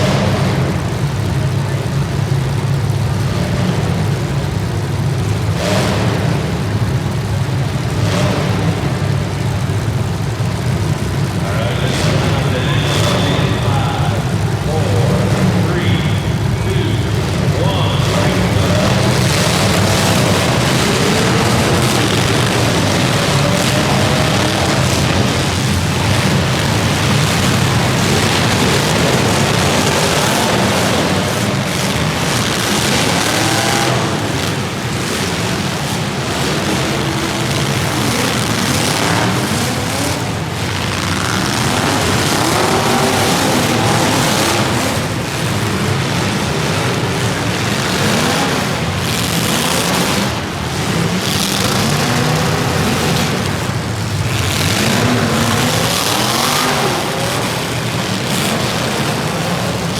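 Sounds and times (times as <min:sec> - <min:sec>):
racing engines revving: 0:00.0 - 0:59.9.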